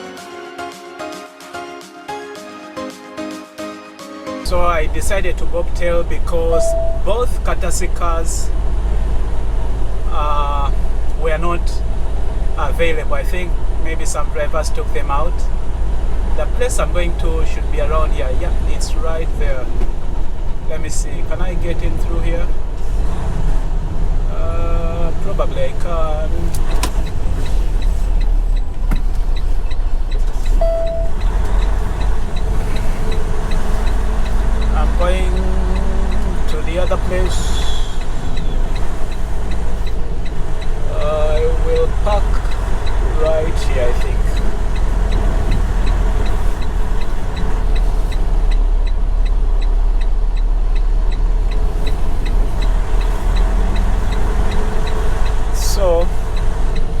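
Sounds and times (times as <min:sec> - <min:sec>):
truck engine rumbling: 0:04.5 - 0:57.0
faint steady ticking: 0:05.0 - 0:22.9, 0:24.0 - 0:57.0
short click: 0:06.6 - 0:07.1
brief beep: 0:06.6 - 0:07.2, 0:30.6 - 0:31.3.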